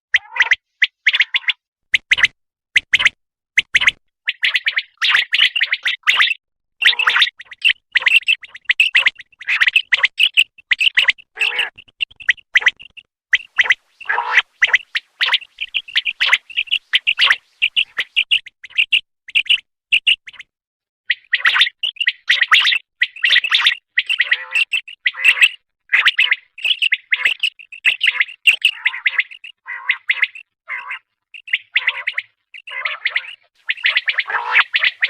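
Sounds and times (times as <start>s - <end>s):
quail calling: 6.8s - 12.7s, 13.4s - 19.0s, 21.1s - 35.0s.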